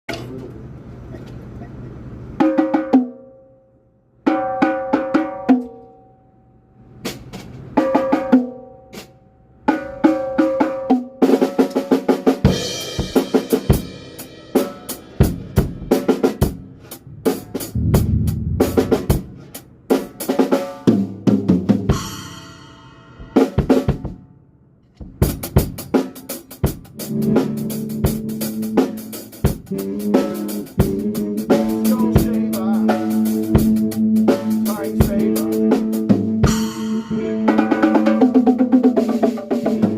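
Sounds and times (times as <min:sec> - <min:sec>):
bass drum: 0:17.0 - 0:19.6
cymbals: 0:17.0 - 0:19.6.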